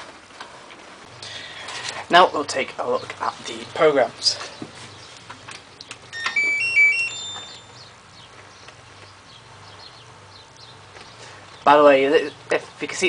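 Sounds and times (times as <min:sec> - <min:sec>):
washing machine beeping jingle: 0:06.1 - 0:07.8.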